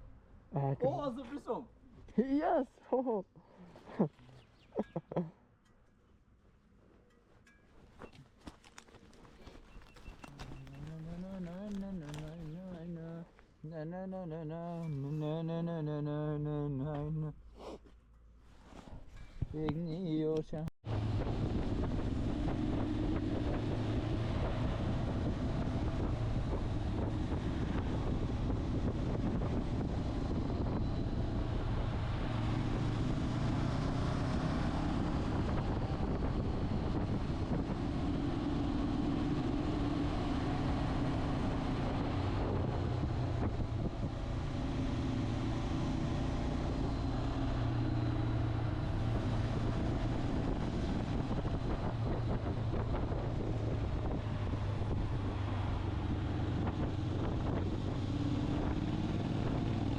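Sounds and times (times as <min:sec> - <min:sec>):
motorcycle engine revving: 0:09.7 - 0:12.8, 0:20.9 - 0:59.9
wind noise on microphone: 0:20.9 - 0:45.3, 0:48.9 - 0:59.8.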